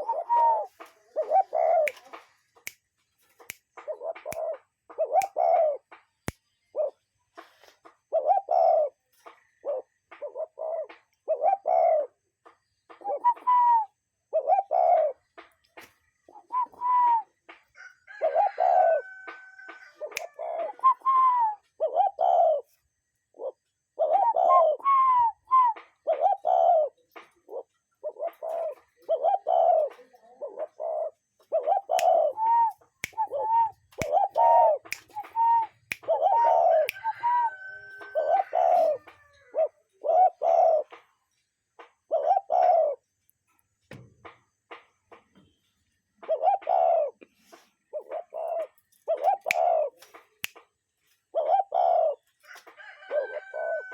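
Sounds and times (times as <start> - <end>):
dove cooing: 0.0 - 2.5, 3.8 - 5.9, 6.7 - 7.0, 8.1 - 12.3, 12.9 - 15.4, 16.3 - 17.4, 18.1 - 41.1, 42.0 - 43.1, 46.2 - 50.1, 51.3 - 53.9
faint bird chirps: 18.9 - 52.5.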